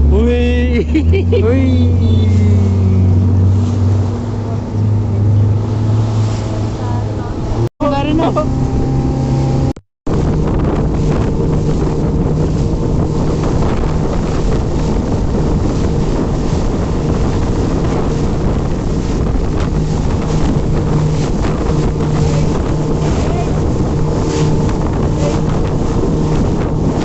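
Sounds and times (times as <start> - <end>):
motorboat engine humming: 0.0 - 27.0
wind buffeting microphone: 0.8 - 27.0.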